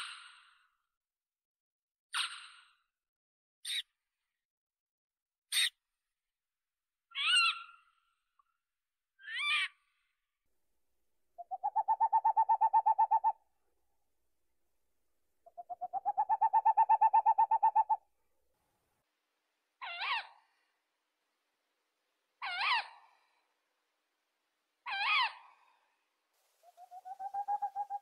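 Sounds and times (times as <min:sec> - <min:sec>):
owl calling: 0:11.4 - 0:13.4, 0:15.5 - 0:18.0, 0:26.6 - 0:28.0.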